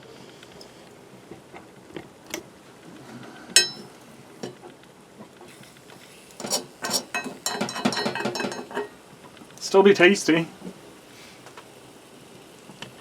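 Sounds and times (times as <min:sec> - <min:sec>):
fork clinking on frying pan: 0:03.6 - 0:04.6, 0:06.4 - 0:08.9.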